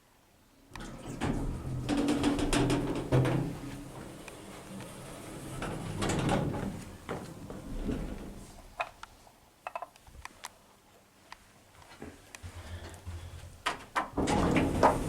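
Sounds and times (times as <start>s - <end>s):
lift doors and mechanism moving: 0.8s - 8.8s, 14.0s - 15.0s.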